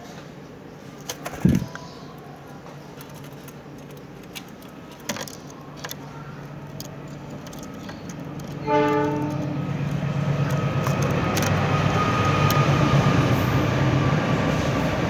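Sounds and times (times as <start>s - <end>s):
passing traffic hum: 0.6s - 15.0s
sharp clicks: 2.9s - 12.8s
loud horn blare: 8.6s - 9.9s.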